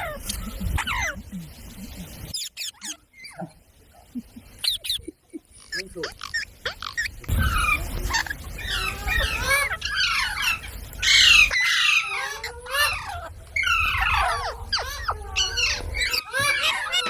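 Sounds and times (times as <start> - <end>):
parrot squawking: 2.3 - 3.4, 5.6 - 17.0.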